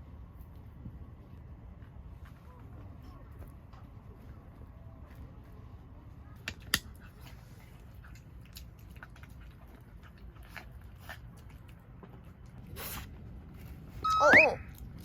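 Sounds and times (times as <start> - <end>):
low steady rumble: 0.0 - 15.0
dog chewing food: 7.0 - 13.9.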